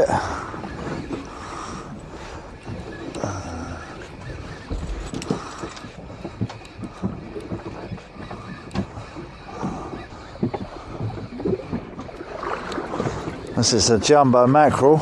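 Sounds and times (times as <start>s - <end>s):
sea noise: 0.0s - 15.0s
wind: 0.0s - 15.0s
short knocks and clicks: 4.4s - 13.6s.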